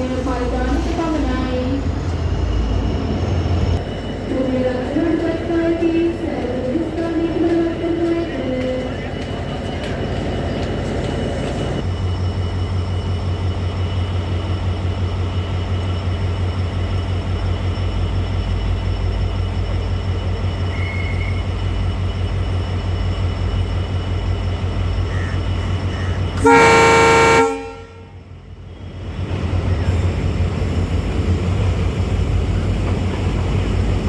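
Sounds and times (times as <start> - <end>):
diesel train engine humming: 0.0 - 34.0
train horn blast: 26.4 - 28.2.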